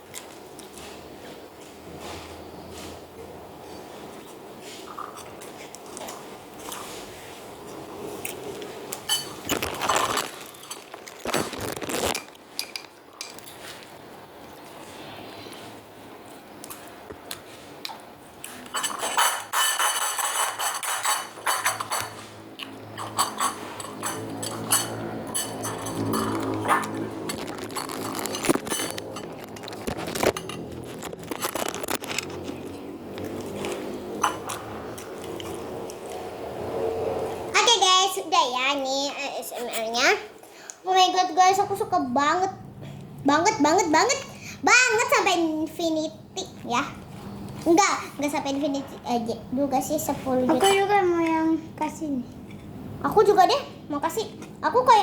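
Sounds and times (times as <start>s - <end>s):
wet slime crackling: 9.0s - 12.5s, 26.1s - 33.9s.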